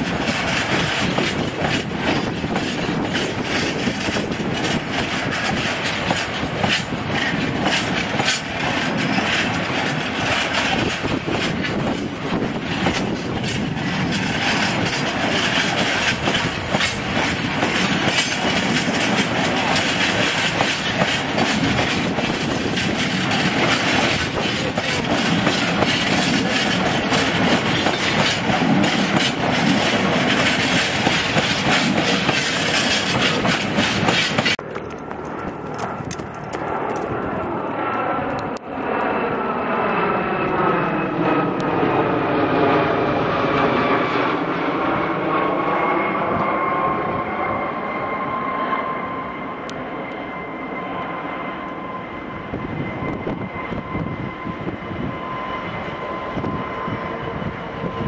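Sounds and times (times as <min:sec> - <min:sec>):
wagons rumbling over rail joints: 0:00.0 - 0:37.5
diesel locomotive engine drone: 0:00.0 - 0:58.0
thin whine: 0:00.0 - 0:58.0.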